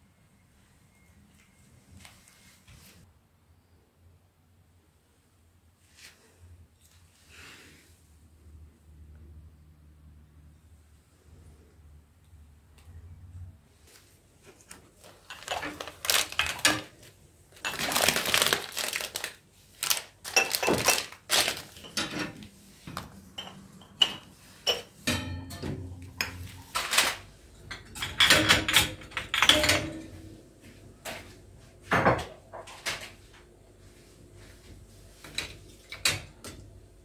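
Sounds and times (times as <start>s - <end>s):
scraping or rustling: 13.7s - 23.2s
hard objects clattering: 15.0s - 22.4s.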